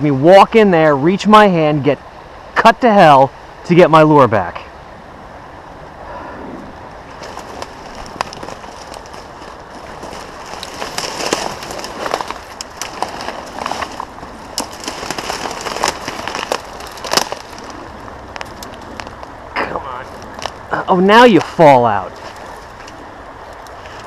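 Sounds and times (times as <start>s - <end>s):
twigs crackling and snapping: 7.1s - 20.7s, 21.3s - 24.0s.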